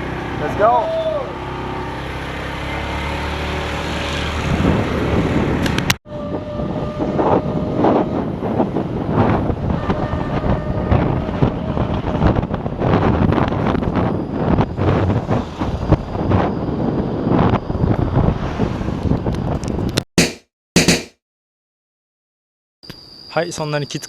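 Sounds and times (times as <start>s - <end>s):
road noise: 0.0s - 19.9s
wind buffeting microphone: 4.2s - 20.0s.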